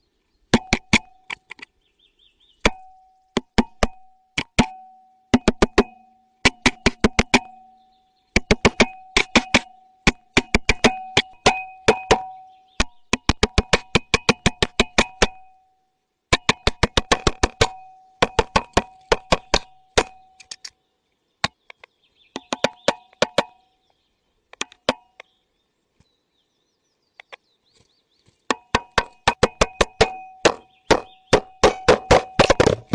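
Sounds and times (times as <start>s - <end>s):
rapid hollow knocking: 0.5s - 1.5s, 2.6s - 7.6s, 8.3s - 15.5s, 16.3s - 20.3s, 22.3s - 23.6s, 28.5s - 32.9s.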